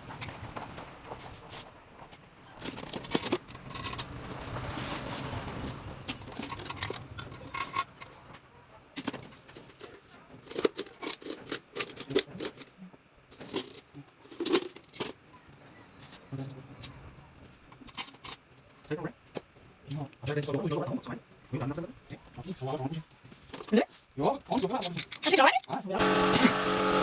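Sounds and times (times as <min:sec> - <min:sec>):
metal tools clinking: 0:02.6 - 0:05.2, 0:06.1 - 0:08.1.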